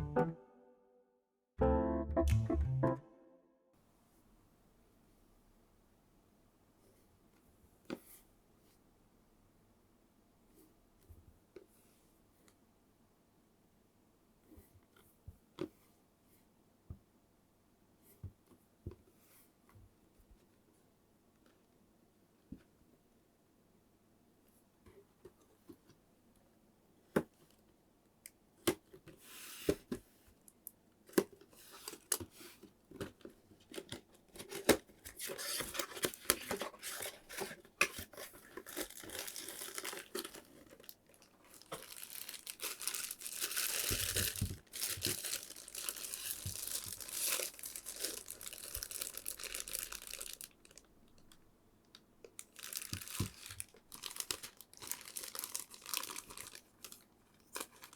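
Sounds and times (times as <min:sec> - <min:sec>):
packaging crinkling and tearing: 0:33.7 - 0:51.4, 0:52.3 - 0:57.9.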